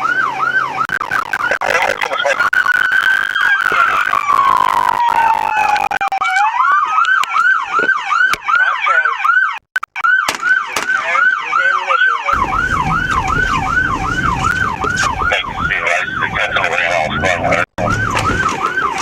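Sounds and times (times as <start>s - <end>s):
police siren wailing and yelping: 0.0s - 19.0s
low rushing noise: 12.4s - 18.5s.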